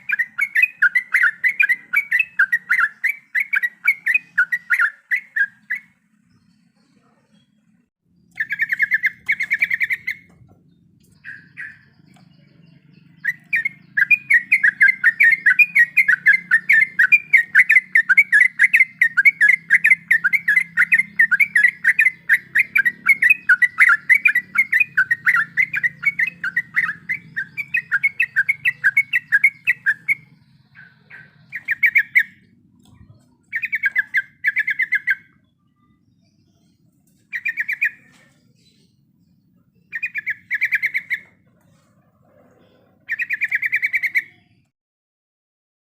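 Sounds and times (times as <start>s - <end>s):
bird singing chattering runs: 0.0s - 42.2s, 42.9s - 44.7s.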